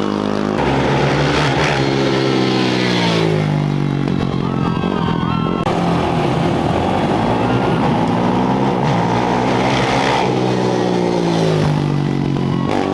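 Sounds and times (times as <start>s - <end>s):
motorcycle engine revving: 0.0s - 12.9s.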